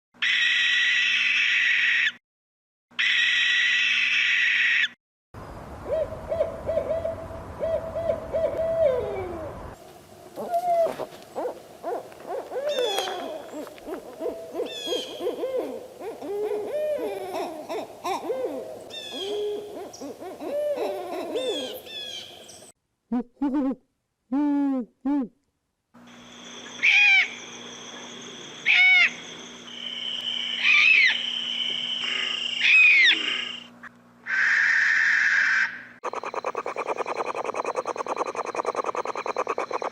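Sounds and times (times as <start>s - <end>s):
owl screech: 0.2s - 2.2s, 3.0s - 5.0s, 26.8s - 27.4s, 28.6s - 29.2s, 30.5s - 31.3s, 32.0s - 39.9s
owl hooting: 5.8s - 9.6s, 10.4s - 22.4s, 26.7s - 27.6s, 28.6s - 29.2s, 30.0s - 39.9s.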